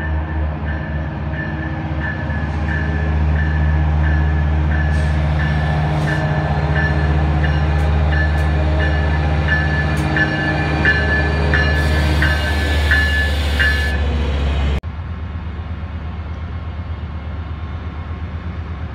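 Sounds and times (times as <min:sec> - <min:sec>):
locomotive bell ringing: 0:00.0 - 0:14.1
diesel locomotive engine rumble: 0:00.0 - 0:18.9.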